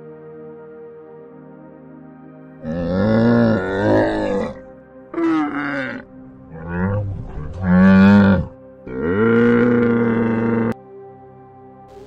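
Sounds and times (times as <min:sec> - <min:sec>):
soft ambient music: 0:00.0 - 0:12.0
camels calling: 0:02.6 - 0:10.8.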